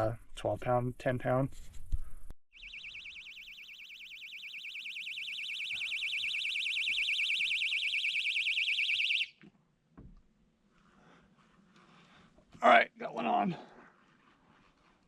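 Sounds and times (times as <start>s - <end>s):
bite alarm warbling beep: 2.5s - 9.3s.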